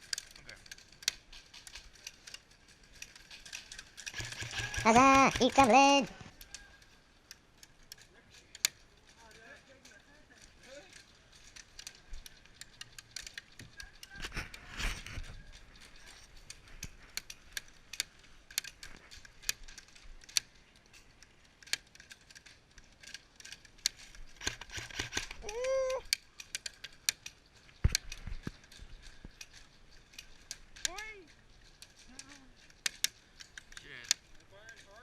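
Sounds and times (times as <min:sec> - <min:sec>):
airsoft guns firing: 0:04.1 - 0:05.8.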